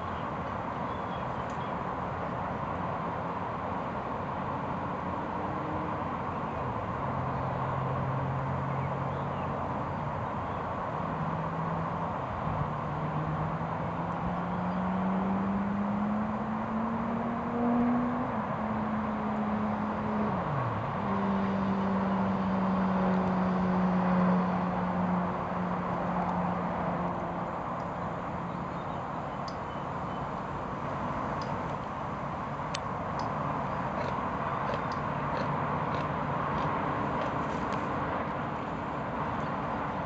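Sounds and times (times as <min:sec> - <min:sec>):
engine drone: 0:03.2 - 0:40.0
constant rushing noise: 0:18.2 - 0:40.0.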